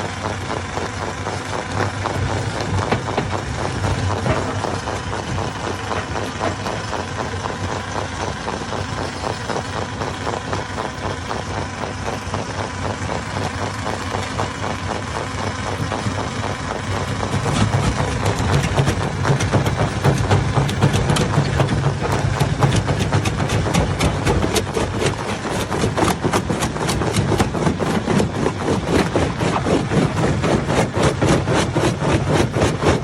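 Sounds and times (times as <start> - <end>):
stone crusher engine running: 0.0 - 33.0
stones clattering in hammers: 17.0 - 33.0.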